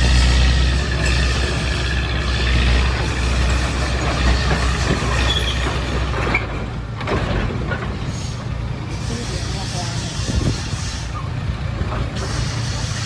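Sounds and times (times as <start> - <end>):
heavy diesel machinery running: 0.0 - 13.0.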